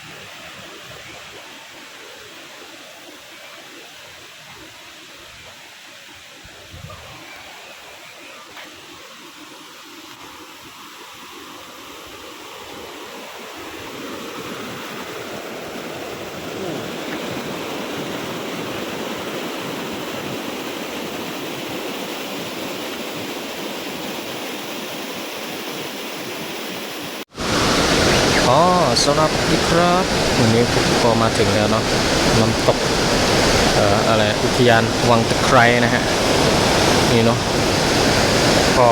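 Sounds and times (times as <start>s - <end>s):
waterfall rushing water: 0.0s - 38.9s.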